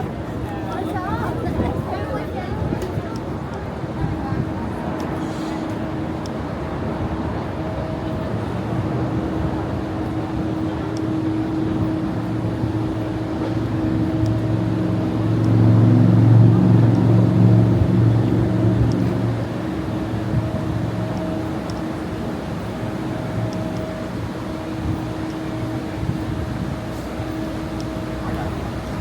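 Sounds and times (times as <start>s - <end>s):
steady mechanical hum: 0.0s - 29.0s.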